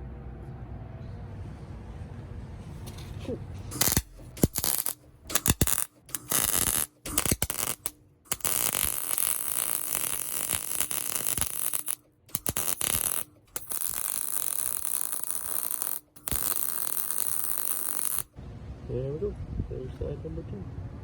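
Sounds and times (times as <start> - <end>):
welder crackling hiss: 3.7 - 18.3.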